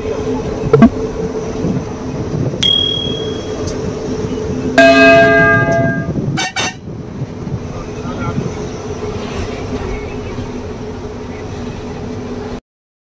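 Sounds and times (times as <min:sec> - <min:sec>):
truck engine droning: 0:00.0 - 0:12.6
metallic bell-like ring: 0:02.6 - 0:03.6, 0:04.8 - 0:06.1.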